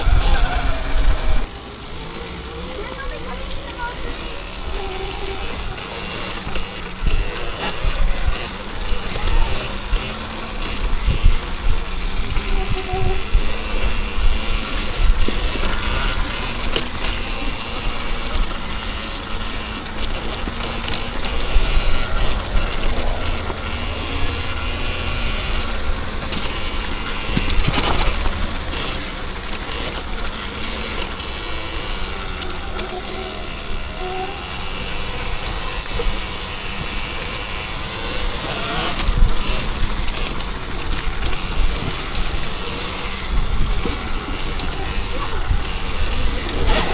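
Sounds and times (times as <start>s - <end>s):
wind rumble on microphone: 0.0s - 1.5s, 4.6s - 30.3s
broad rushing noise: 0.0s - 46.9s
electric motor whine: 0.0s - 46.9s.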